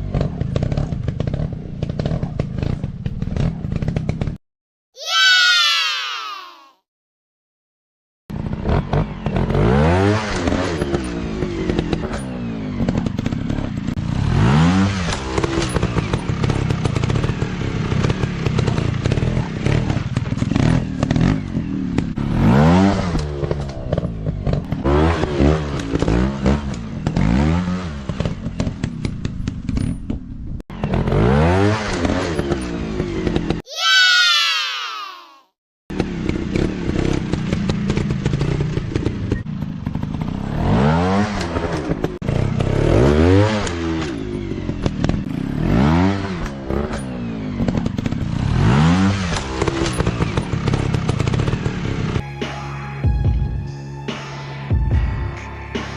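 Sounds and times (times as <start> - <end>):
dirt bike engines revving: 8.4 - 29.7, 35.9 - 52.2.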